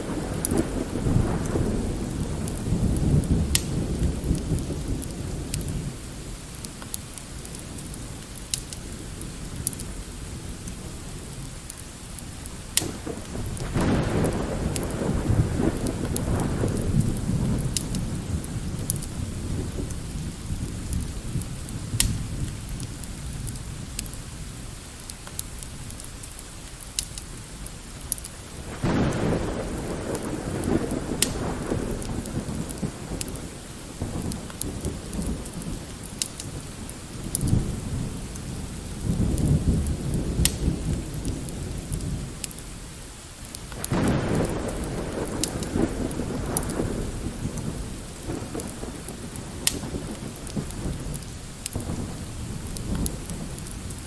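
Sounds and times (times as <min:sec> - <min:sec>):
rolling thunder: 0:00.0 - 0:06.6, 0:12.5 - 0:24.2, 0:28.5 - 0:42.8, 0:43.7 - 0:54.0
light rain: 0:00.0 - 0:54.0
wood fire crackling: 0:00.0 - 0:54.0.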